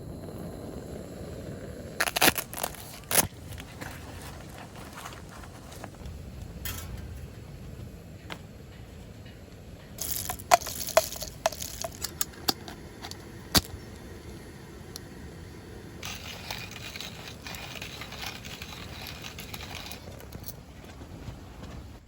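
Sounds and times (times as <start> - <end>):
small hard objects clinking: 2.0 - 5.4, 10.0 - 13.9, 16.0 - 20.6.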